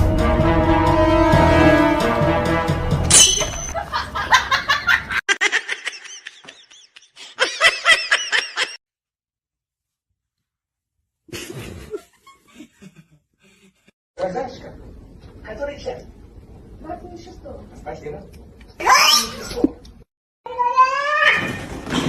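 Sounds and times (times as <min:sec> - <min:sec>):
high-pitched laughter: 0:03.8 - 0:08.8.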